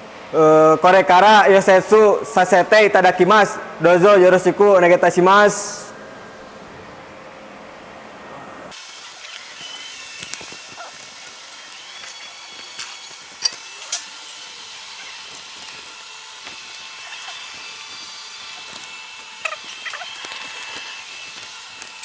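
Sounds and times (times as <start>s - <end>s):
arc welding crackling hiss: 8.7s - 22.0s
sharp welding snaps: 8.7s - 22.0s.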